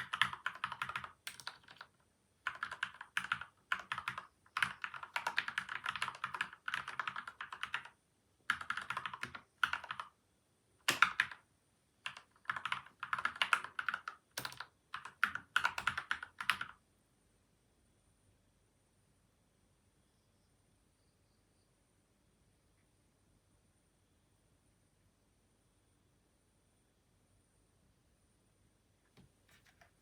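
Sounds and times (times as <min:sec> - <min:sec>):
fast typing on mechanical keyboard: 0:00.0 - 0:10.2, 0:10.8 - 0:11.4, 0:12.0 - 0:16.8.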